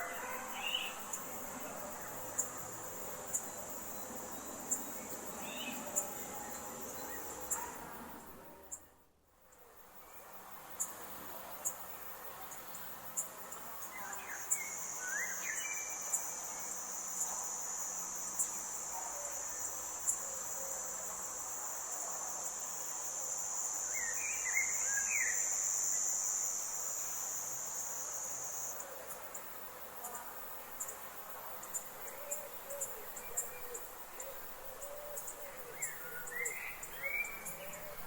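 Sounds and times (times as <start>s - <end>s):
cricket trilling: 0.0s - 38.0s
bird chirping: 32.1s - 38.0s.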